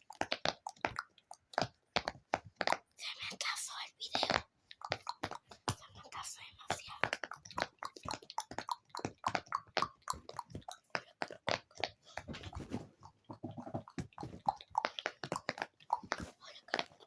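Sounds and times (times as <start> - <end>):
wet mouth clicks and smacks: 0.0 - 17.0.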